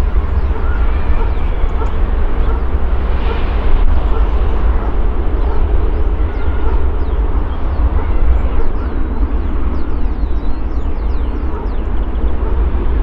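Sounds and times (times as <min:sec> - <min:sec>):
jet engine rumble: 0:00.0 - 0:08.1.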